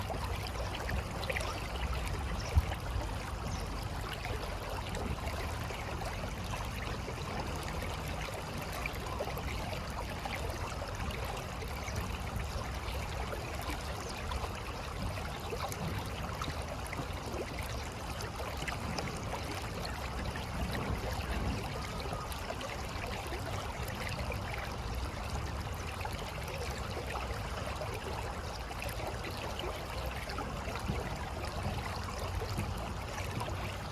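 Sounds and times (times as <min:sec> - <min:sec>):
river water flowing: 0:00.0 - 0:33.9.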